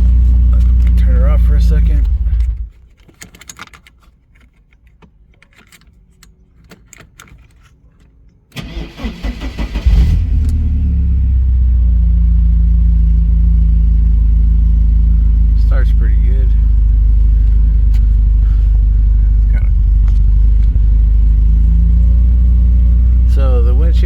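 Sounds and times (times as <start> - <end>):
car engine idling: 0.0 - 2.8, 8.6 - 24.0
engine cranking and starting: 8.5 - 10.8.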